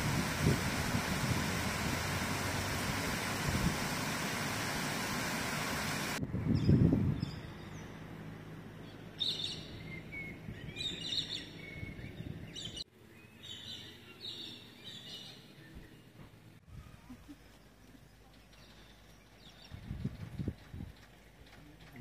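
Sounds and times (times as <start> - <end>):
birds chirping: 8.8 - 16.1.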